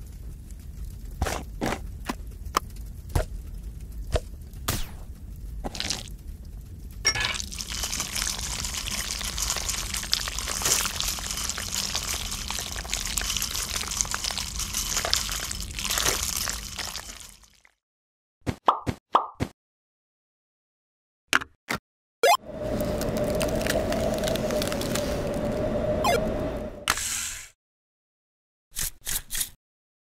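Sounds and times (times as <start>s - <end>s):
pouring into a ceramic bowl: 7.1s - 17.7s.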